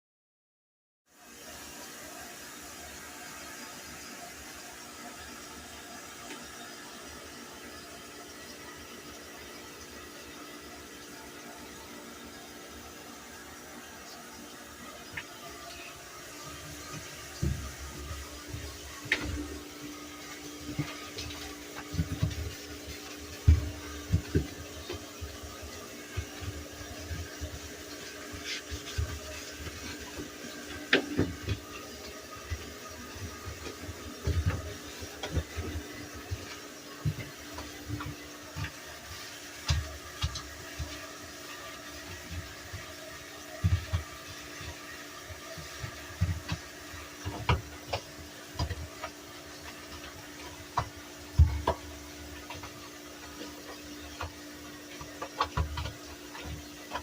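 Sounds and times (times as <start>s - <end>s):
items thudding and knocking: 16.8s - 27.6s, 28.4s - 38.8s.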